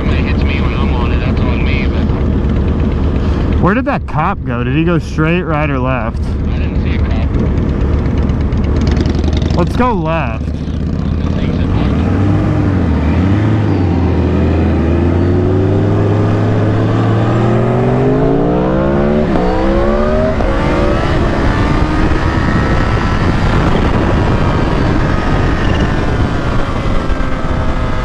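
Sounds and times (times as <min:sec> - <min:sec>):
gear change: 0:00.0 - 0:28.0
motorcycle engine accelerating: 0:00.0 - 0:28.0
wind noise: 0:12.4 - 0:28.0.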